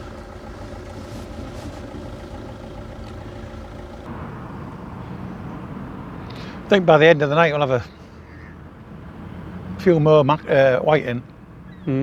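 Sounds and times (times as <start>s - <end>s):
machinery hum: 0.0s - 5.1s.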